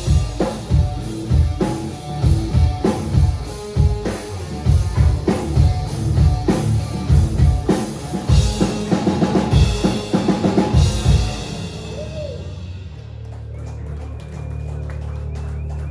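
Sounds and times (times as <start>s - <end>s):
heavy drum-kit hits: 0.0s - 13.5s
live rock band: 0.0s - 14.0s.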